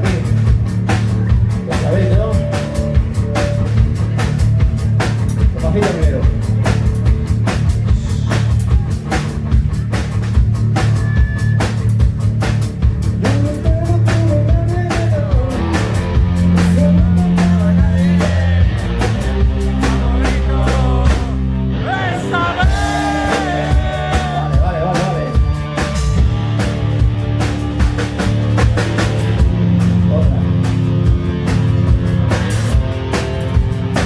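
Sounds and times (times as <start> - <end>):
bass and guitars: 0.0 - 34.0
person singing: 16.7 - 25.4.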